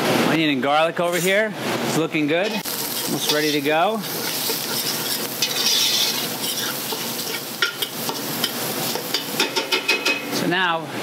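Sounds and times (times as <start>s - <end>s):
metal spoon scraping a pot: 2.4s - 9.2s
food sizzling in a pot: 2.4s - 10.4s.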